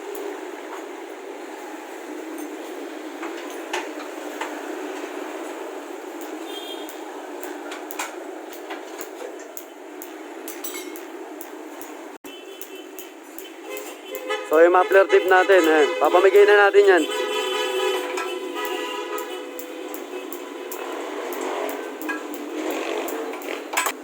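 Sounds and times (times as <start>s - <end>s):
steady background noise: 0.0s - 24.0s
metal tools clinking: 10.5s - 11.1s.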